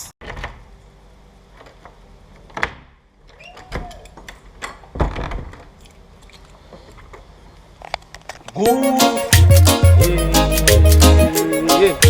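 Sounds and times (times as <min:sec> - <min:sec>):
sharp knocks and thumps: 0:04.7 - 0:05.8.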